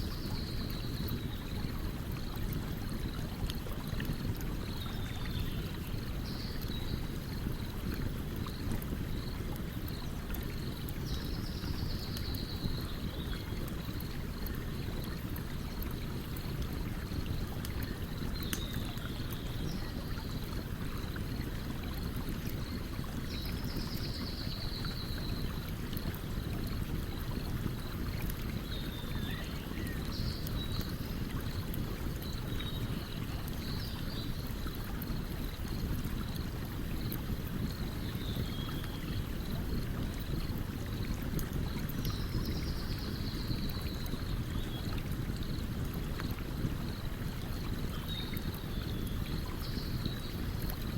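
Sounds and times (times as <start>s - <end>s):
stream water running: 0.0s - 50.9s.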